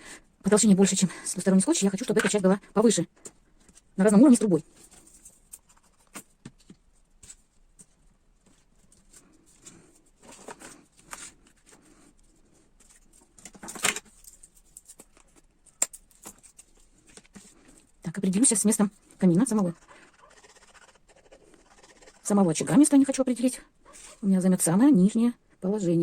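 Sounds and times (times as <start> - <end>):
cardboard paper rustles: 4.7 - 15.4.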